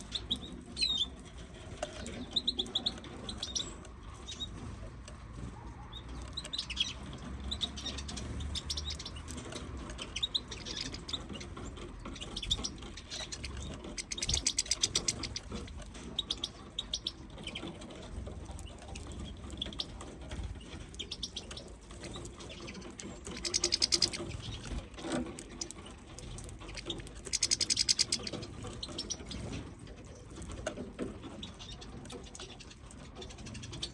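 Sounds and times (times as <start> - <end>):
finches chirping and twittering: 0.0 - 33.9.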